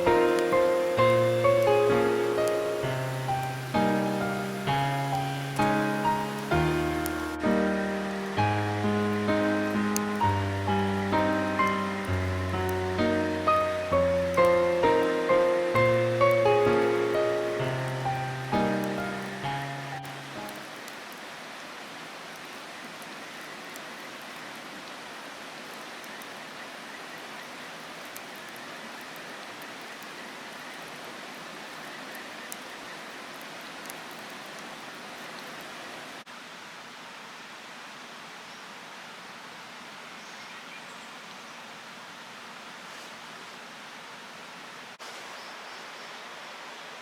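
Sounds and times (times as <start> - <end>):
rushing water-like noise: 0.0 - 47.0
faint ticks: 9.2 - 21.3.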